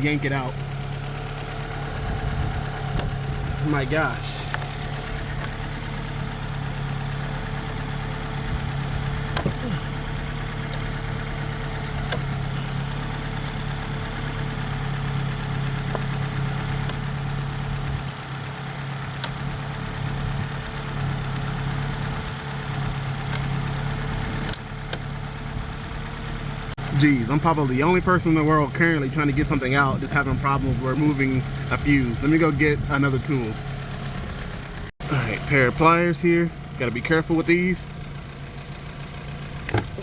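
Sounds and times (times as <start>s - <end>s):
car engine idling: 0.0s - 40.0s
sharp clicks: 2.8s - 3.2s, 10.6s - 11.0s, 12.0s - 12.4s, 16.8s - 17.0s, 19.1s - 19.4s.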